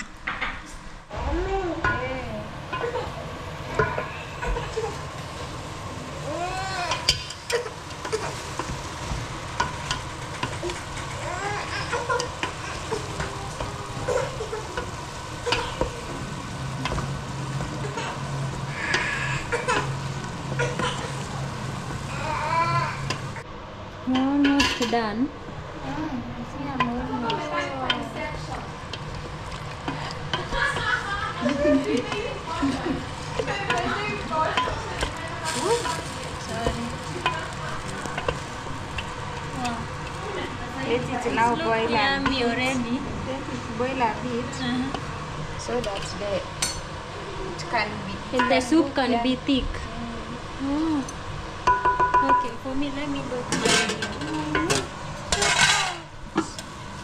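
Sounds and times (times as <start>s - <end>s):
food sizzling in a pan: 1.5s - 23.4s, 26.6s - 57.0s
utensil clinking on cookware: 53.5s - 56.1s.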